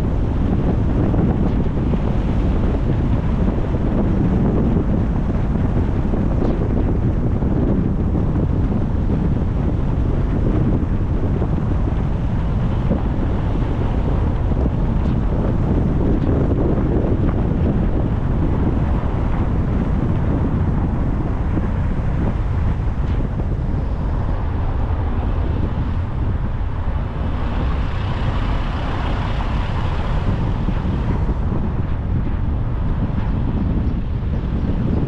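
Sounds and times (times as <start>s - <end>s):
car driving on road: 0.0s - 35.0s
wind buffeting microphone: 0.0s - 35.0s.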